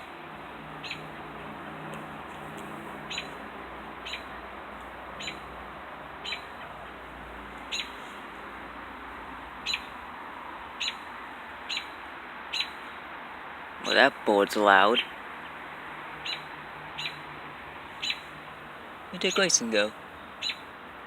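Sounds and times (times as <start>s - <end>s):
bird chirping: 0.8s - 1.1s, 2.6s - 3.4s, 4.0s - 4.4s, 5.2s - 5.5s, 6.2s - 7.0s, 7.6s - 8.2s, 9.6s - 10.0s, 10.8s - 11.1s, 11.7s - 13.0s, 16.2s - 17.3s, 17.9s - 18.3s, 19.2s - 20.7s.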